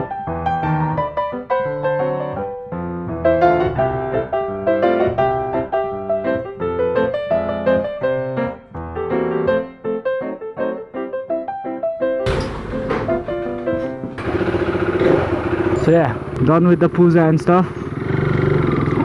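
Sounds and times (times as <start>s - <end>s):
piano music: 12.3s - 16.4s.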